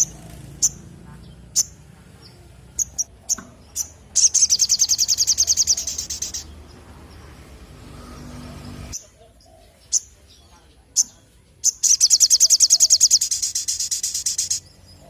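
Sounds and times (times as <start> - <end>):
fast bird trill: 0.0 - 1.9, 2.7 - 6.6, 11.0 - 15.0
bird chips: 0.0 - 6.8, 10.9 - 15.0.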